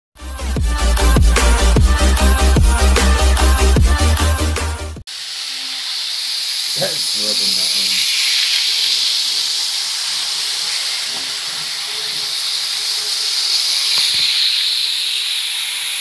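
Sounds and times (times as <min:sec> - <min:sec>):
high-pitched hiss: 0:05.1 - 0:16.0.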